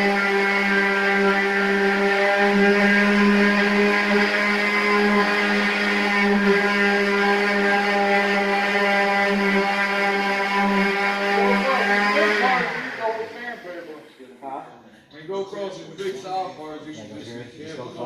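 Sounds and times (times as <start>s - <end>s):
steady motor hum: 0.0s - 14.0s.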